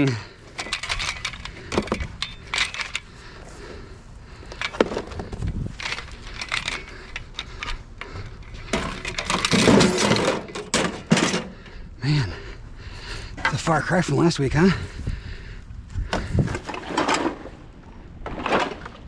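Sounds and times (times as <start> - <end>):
clattering and scraping: 0.0 - 3.1, 4.4 - 11.6, 16.0 - 17.6, 18.2 - 19.0
hard objects knocking and rattling: 0.5 - 3.0, 4.5 - 7.7, 8.5 - 11.6.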